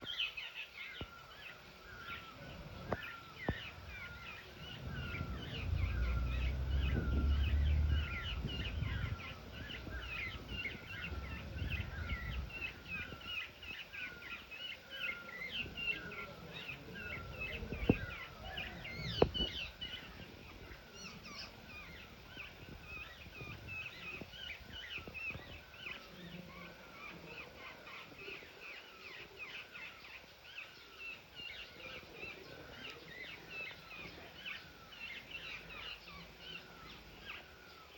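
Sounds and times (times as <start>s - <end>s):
birds chirping rapidly: 0.0s - 37.9s
low rumble: 1.9s - 13.4s, 15.6s - 25.6s.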